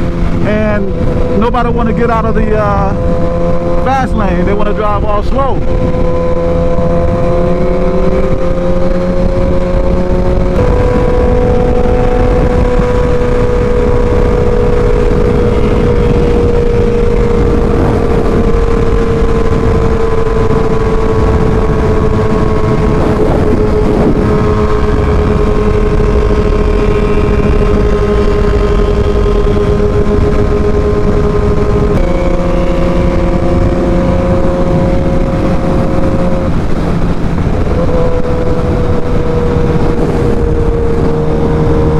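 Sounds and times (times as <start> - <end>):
motorcycle engine cruising: 0.0 - 41.9
wind rush on microphone: 0.0 - 41.9.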